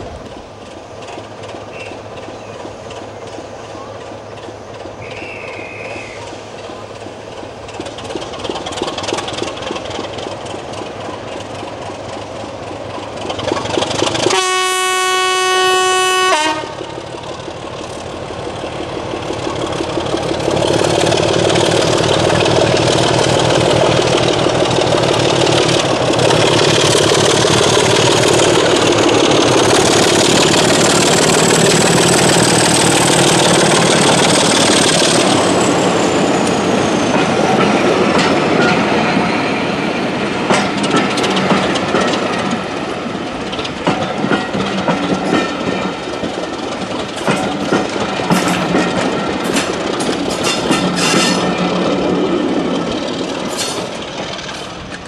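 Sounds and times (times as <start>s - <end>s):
train wheels clattering: 0.0s - 14.6s, 16.3s - 55.0s
train horn: 5.0s - 6.2s, 14.2s - 16.9s.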